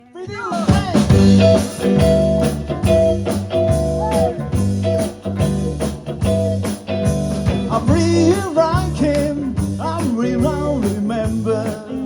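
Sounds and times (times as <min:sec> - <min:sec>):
bass: 0:00.0 - 0:12.0
drum hits: 0:00.6 - 0:11.6.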